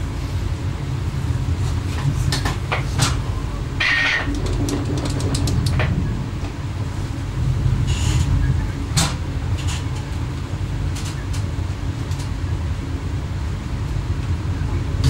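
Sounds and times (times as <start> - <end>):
train rumble and hum: 0.0 - 15.0
sharp clicks and knocks: 3.8 - 6.6.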